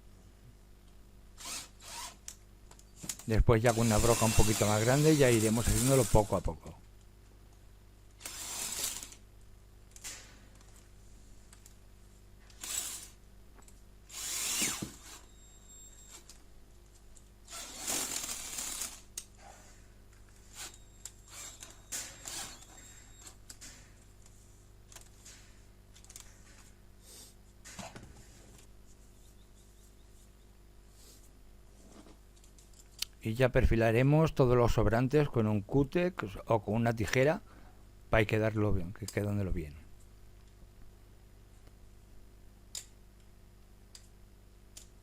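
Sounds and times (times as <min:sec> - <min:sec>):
electric drill boring through foam: 0:01.4 - 0:02.2, 0:03.7 - 0:06.3, 0:08.2 - 0:09.2, 0:14.1 - 0:15.3, 0:17.5 - 0:19.0, 0:21.3 - 0:23.0.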